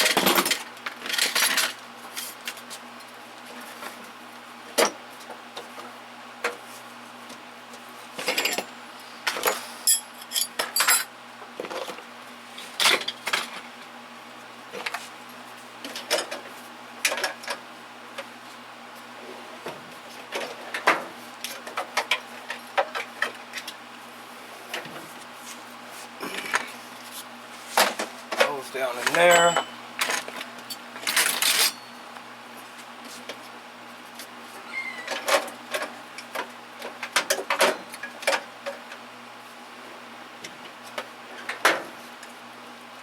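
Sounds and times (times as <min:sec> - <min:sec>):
metal hand tools clinking: 0:09.8 - 0:11.1, 0:29.0 - 0:29.8, 0:31.2 - 0:32.0.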